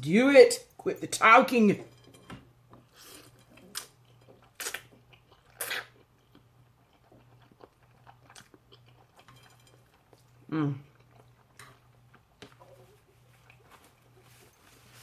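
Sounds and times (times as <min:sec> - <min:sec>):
chewing noodles: 0:02.8 - 0:14.6.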